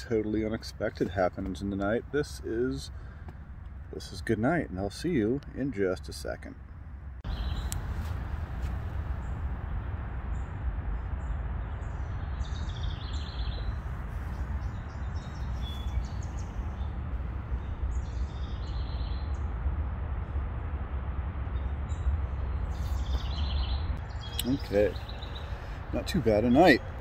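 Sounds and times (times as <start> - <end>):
low outdoor rumble: 0.0 - 27.0
birds chirping: 7.2 - 19.6, 21.5 - 27.0.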